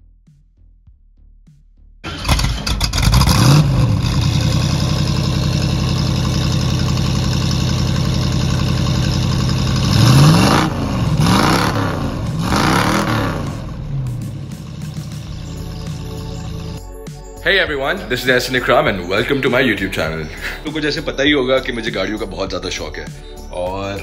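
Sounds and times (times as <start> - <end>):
car engine revving: 2.0 - 16.8.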